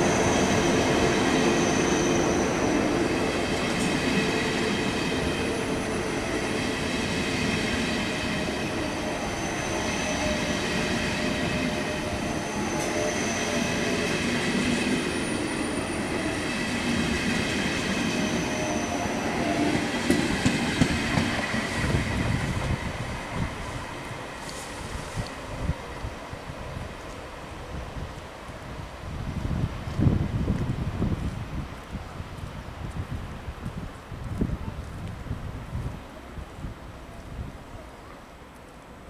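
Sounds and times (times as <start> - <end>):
faint high whines: 0.0 - 20.1
train wheels rumbling on rails: 0.0 - 36.0.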